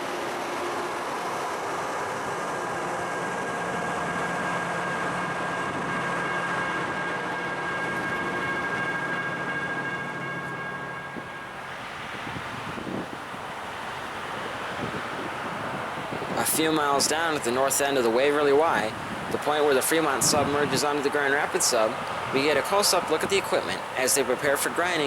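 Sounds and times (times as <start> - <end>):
high-pitched whine: 0.0 - 25.0
train rumbling past: 0.0 - 25.0.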